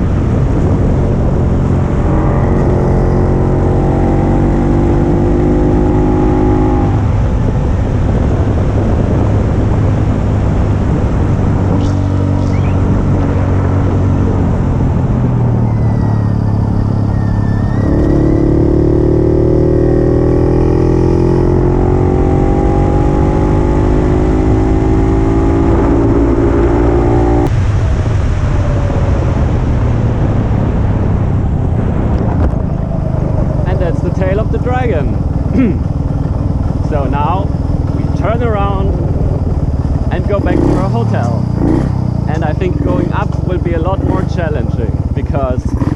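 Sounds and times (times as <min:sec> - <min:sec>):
two-stroke motorcycle engine running: 0:33.3 - 0:45.9.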